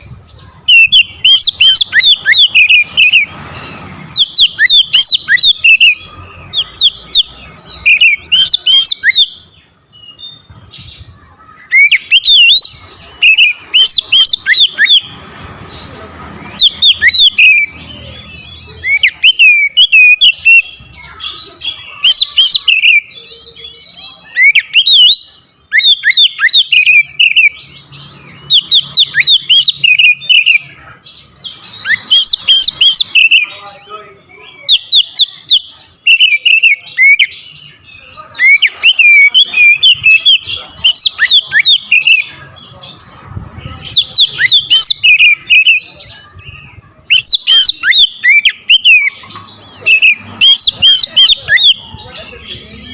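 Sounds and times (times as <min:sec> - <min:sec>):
bird singing sharp whistles: 0:00.7 - 0:03.3, 0:04.1 - 0:06.0, 0:06.6 - 0:09.4, 0:11.7 - 0:15.1, 0:18.8 - 0:20.7, 0:24.3 - 0:27.6, 0:28.4 - 0:30.6, 0:31.8 - 0:33.5, 0:47.1 - 0:49.2.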